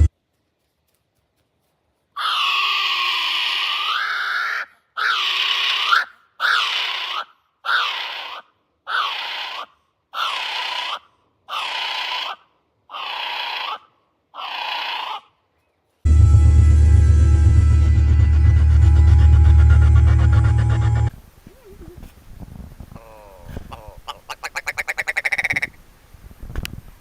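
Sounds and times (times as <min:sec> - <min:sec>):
bird screeching: 0:02.2 - 0:09.6.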